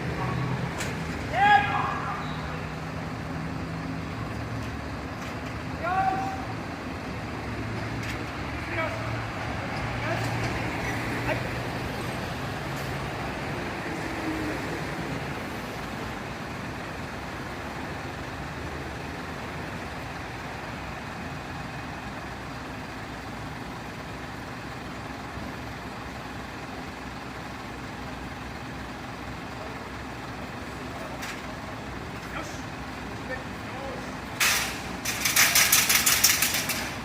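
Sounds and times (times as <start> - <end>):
truck engine idling: 0.0 - 37.0.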